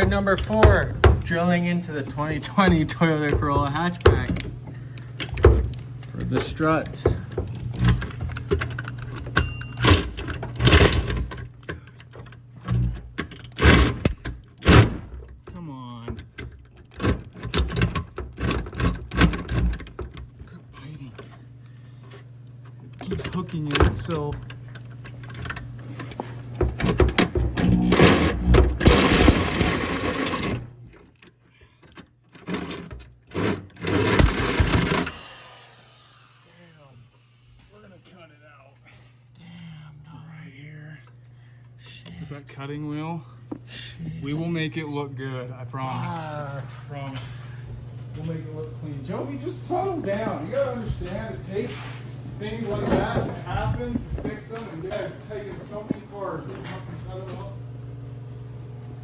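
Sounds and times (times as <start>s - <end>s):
power drill cutting metal: 27.6s - 30.7s, 33.3s - 37.8s.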